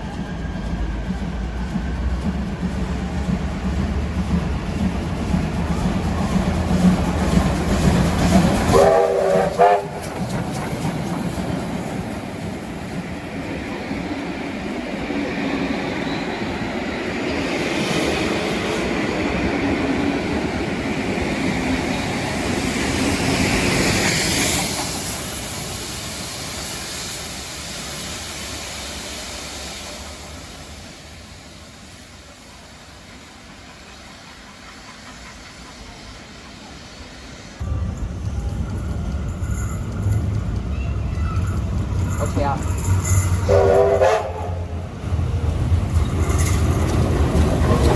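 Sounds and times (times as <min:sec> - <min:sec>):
train rolling: 0:00.0 - 0:47.9
train horn blast: 0:08.7 - 0:10.2, 0:43.4 - 0:44.8.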